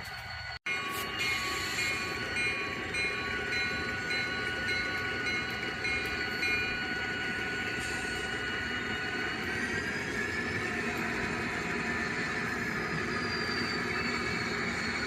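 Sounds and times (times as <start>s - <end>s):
diesel locomotive engine rumble: 0.0s - 15.0s
bell ringing: 0.7s - 6.9s.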